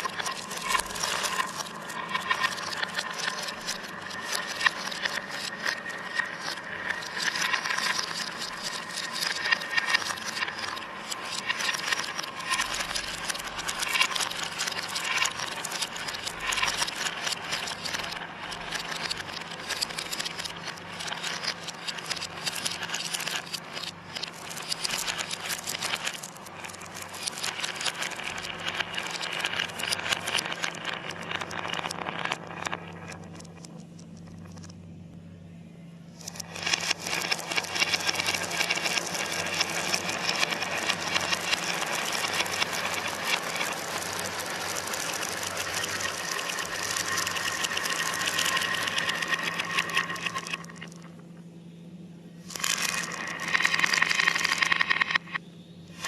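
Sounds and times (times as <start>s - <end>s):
marbles rattling down a run: 0.0s - 33.7s, 36.2s - 51.2s, 52.4s - 55.4s
steady low hum: 32.8s - 56.0s.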